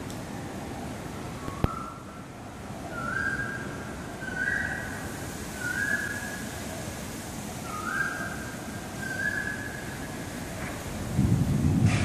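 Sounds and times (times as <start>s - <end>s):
bird whistling: 2.9s - 4.9s, 5.6s - 6.4s, 7.6s - 9.9s.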